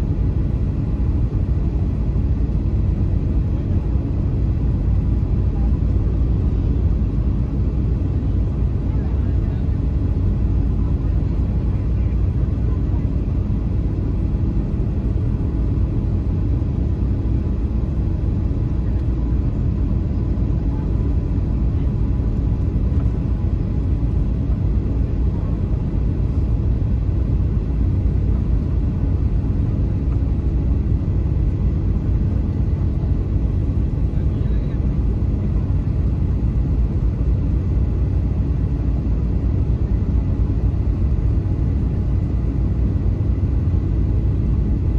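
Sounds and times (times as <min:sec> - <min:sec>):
airplane cabin engine rumble: 0:00.0 - 0:44.9.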